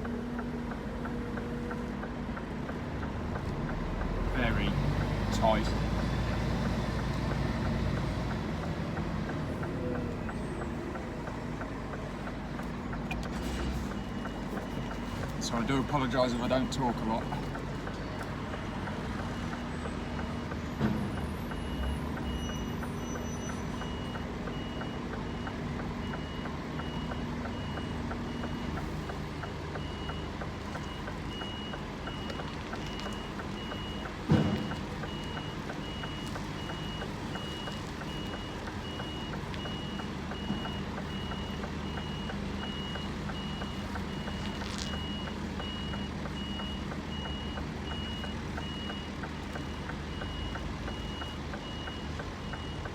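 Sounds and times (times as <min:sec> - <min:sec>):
diesel engine running: 0:00.0 - 0:52.9
reversing alarm beeping: 0:13.4 - 0:52.9.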